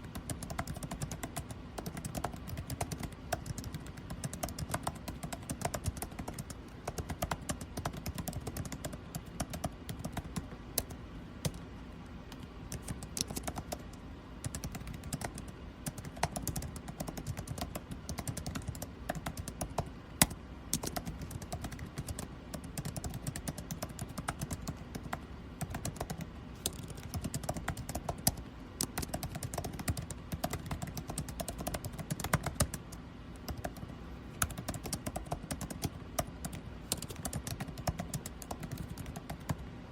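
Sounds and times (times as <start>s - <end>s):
air conditioning hum: 0.0s - 39.9s
keyboard keystroke clicks: 0.1s - 11.6s, 12.3s - 39.6s.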